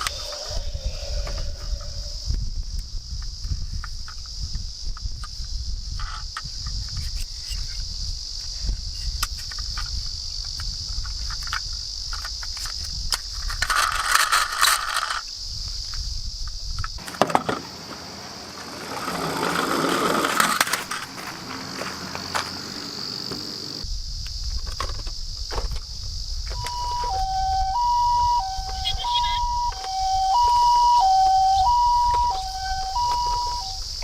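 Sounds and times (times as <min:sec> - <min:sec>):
low rumble: 0:00.0 - 0:03.4
high insect drone: 0:00.0 - 0:34.0
toy cars rolling and clicking: 0:11.0 - 0:15.3, 0:18.6 - 0:21.3
toy cars clattering: 0:11.2 - 0:15.2, 0:18.7 - 0:22.5.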